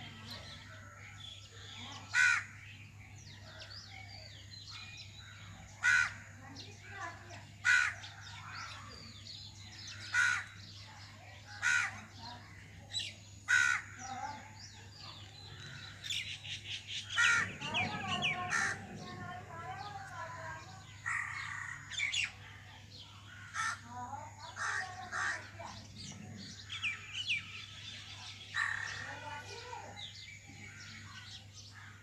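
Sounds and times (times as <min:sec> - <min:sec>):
loud harsh bird call: 0:01.5 - 0:02.8, 0:15.5 - 0:20.2
mynas chattering and chirping: 0:05.4 - 0:32.0.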